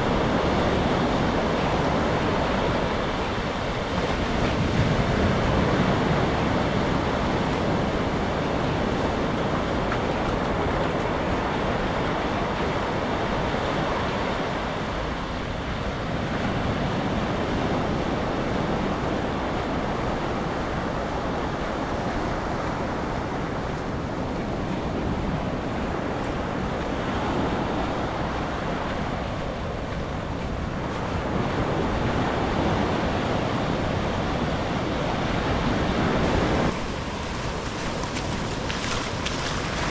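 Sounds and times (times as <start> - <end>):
sea waves washing onto beach: 0.0 - 39.9
wind rumbling on microphone: 0.0 - 39.9
rain: 34.4 - 39.9.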